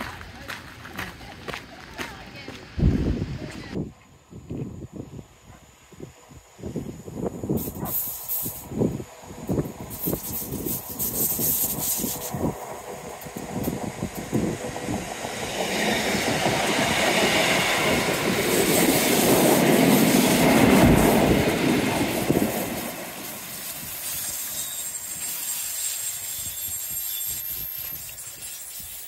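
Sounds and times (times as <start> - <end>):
diesel train passing: 6.1 - 29.0.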